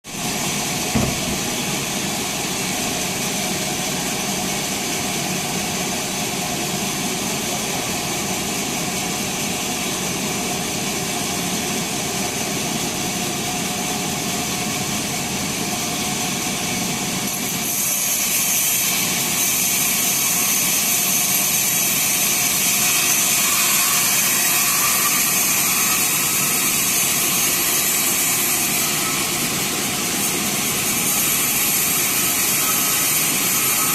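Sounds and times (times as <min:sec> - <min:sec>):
band saw running: 0:00.2 - 0:08.7, 0:16.0 - 0:33.9
knock: 0:00.9 - 0:01.9.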